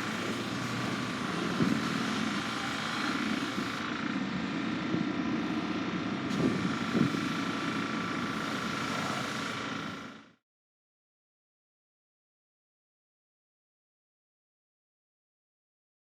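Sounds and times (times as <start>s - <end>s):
electric train running: 0.0s - 4.2s.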